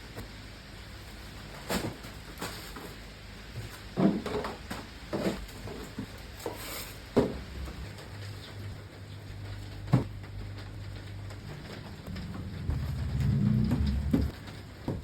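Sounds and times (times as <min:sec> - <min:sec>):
knocks and clatters of objects: 0:01.4 - 0:08.6, 0:09.6 - 0:15.0.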